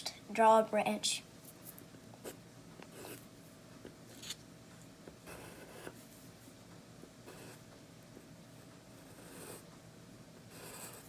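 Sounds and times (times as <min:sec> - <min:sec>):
pencil scratching on paper: 0:05.2 - 0:06.0, 0:07.3 - 0:07.6, 0:08.9 - 0:09.7, 0:10.5 - 0:11.0.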